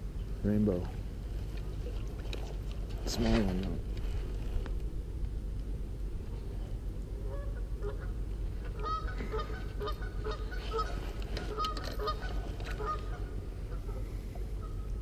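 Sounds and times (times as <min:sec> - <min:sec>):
birds calling: 0:07.2 - 0:15.0.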